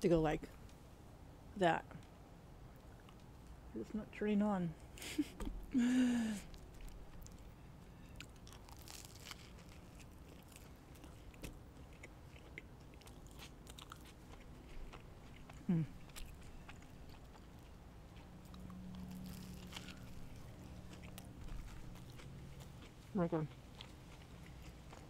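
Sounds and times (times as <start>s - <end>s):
low steady hum: 0.0s - 25.0s
biting and chewing food: 5.5s - 25.0s
person humming mm: 15.6s - 16.0s.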